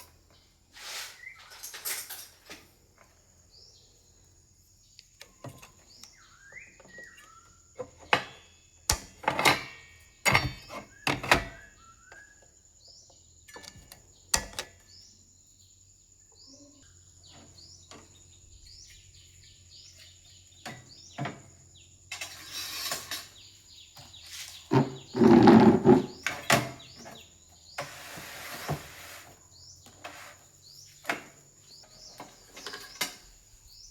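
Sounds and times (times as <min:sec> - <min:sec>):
bird chirps: 0:04.8 - 0:08.0, 0:10.6 - 0:14.3.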